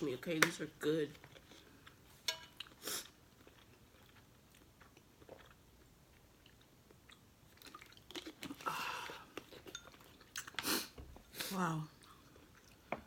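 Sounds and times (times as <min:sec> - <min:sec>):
chewing noodles: 0:02.6 - 0:10.8.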